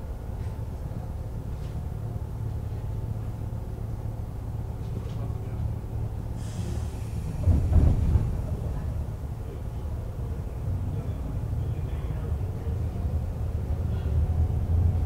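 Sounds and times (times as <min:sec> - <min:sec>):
electric train hum: 0:00.0 - 0:15.0
train rumble: 0:00.0 - 0:15.0
hiss of air: 0:06.4 - 0:08.1.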